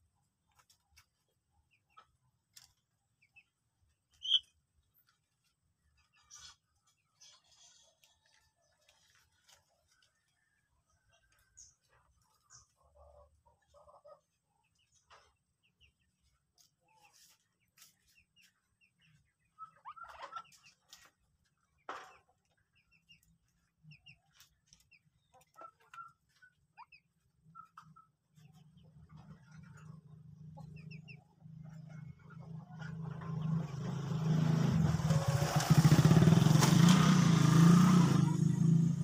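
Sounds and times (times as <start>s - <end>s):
bird calls and peeps: 0.6s - 34.0s
motorcycle engine approaching: 28.4s - 39.0s.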